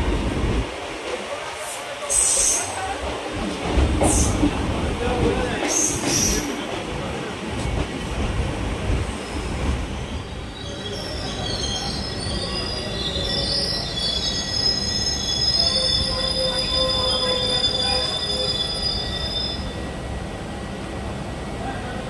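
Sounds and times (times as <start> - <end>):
moving train rumble: 0.0 - 22.0
train wheels squealing on rails: 1.5 - 3.0, 4.0 - 4.5, 5.4 - 6.6, 9.0 - 20.0.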